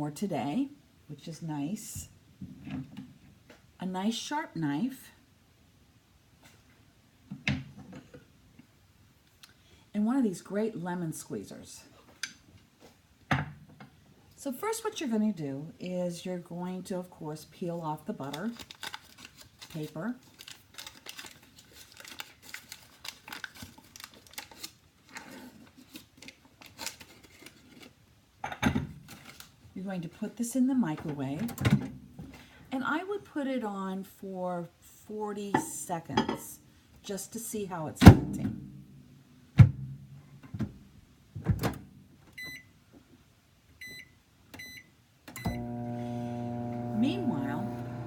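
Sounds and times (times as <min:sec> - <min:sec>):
waxed paper crinkling and tearing: 0:18.2 - 0:28.0, 0:29.1 - 0:29.6
keypad beeps: 0:42.4 - 0:42.7, 0:43.8 - 0:44.8.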